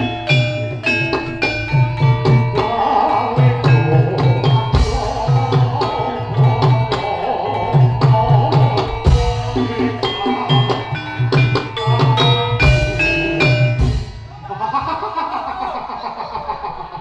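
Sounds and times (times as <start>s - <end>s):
struck metallophones ringing: 0.0s - 16.0s
hand drums playing busy rhythm: 0.0s - 16.8s.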